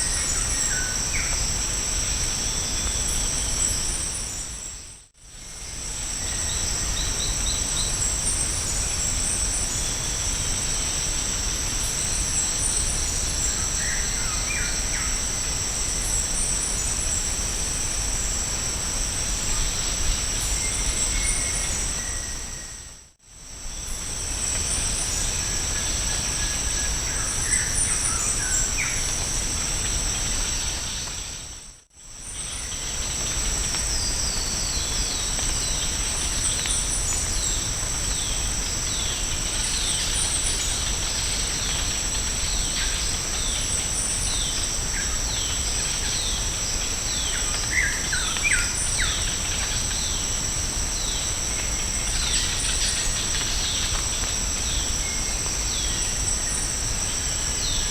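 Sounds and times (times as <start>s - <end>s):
high-pitched insect drone: 5.5s - 23.0s.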